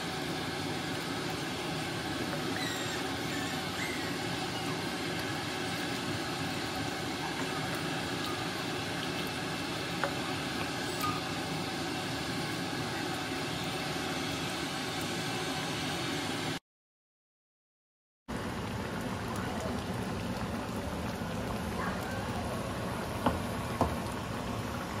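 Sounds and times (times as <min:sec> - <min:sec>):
meat sizzling in a wok: 0:00.0 - 0:16.6.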